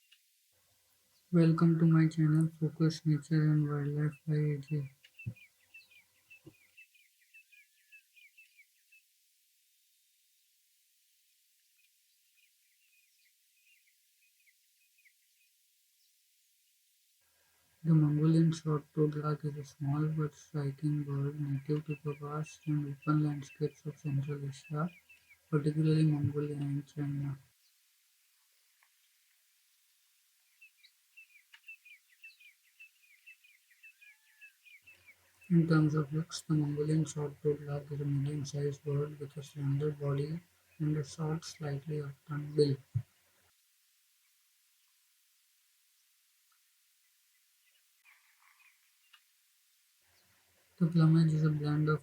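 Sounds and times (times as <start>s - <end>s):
small bird chirping: 2.0s - 9.2s, 17.8s - 43.0s, 45.9s - 52.0s.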